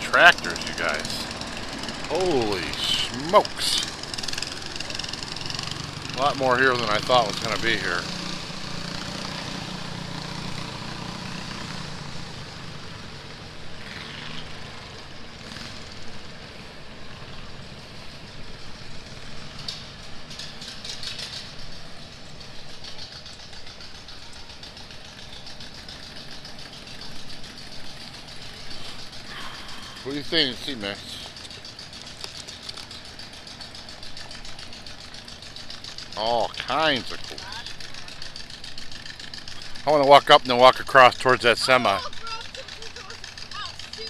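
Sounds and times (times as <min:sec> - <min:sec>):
engine idling: 0:00.0 - 0:44.0
outdoor background noise: 0:00.0 - 0:44.0
faint rattling: 0:18.2 - 0:44.0.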